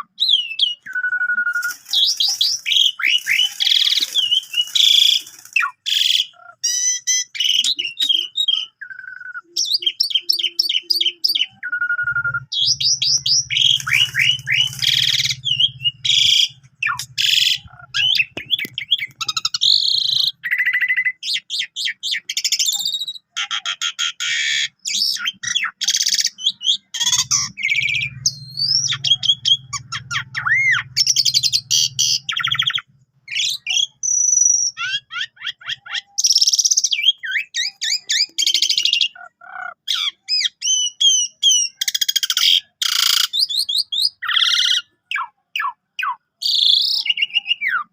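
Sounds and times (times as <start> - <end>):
starling singing: 0.0 - 47.9
low buzz: 12.2 - 18.3.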